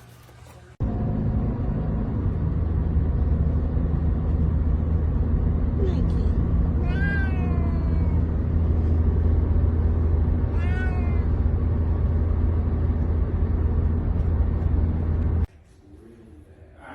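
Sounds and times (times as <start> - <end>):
steady low rumble: 0.8 - 16.7
cat meowing: 6.8 - 8.4, 10.4 - 11.5.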